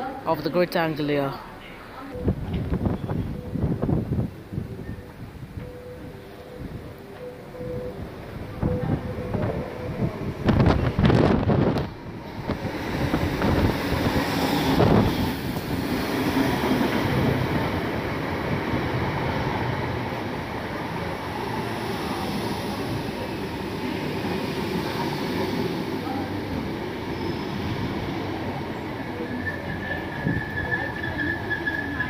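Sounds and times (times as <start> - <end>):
train wheels rumbling on rails: 7.2 - 32.0.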